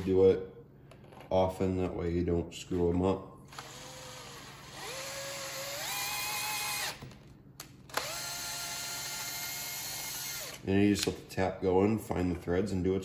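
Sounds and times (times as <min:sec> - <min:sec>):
power drill motor whine: 0:03.4 - 0:07.2, 0:07.9 - 0:10.6.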